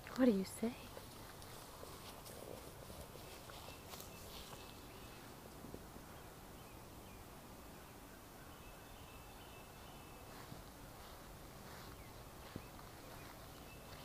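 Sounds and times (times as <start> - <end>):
distant bird chirps: 0.3 - 14.0
light rustles: 0.9 - 4.9.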